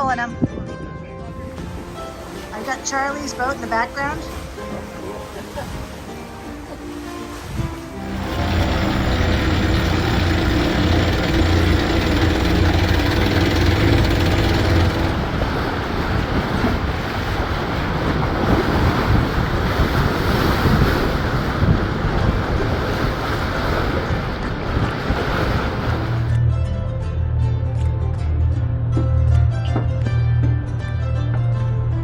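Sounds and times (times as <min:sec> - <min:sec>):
water rushing past boat: 0:01.5 - 0:26.4
wind buffeting microphone: 0:07.4 - 0:26.3
steady low hum: 0:08.0 - 0:16.6.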